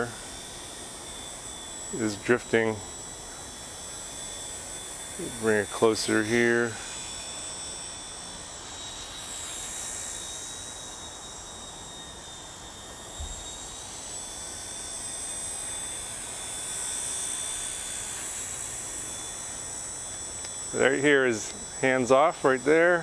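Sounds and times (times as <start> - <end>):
toy helicopter rotor whine: 0.0 - 23.0.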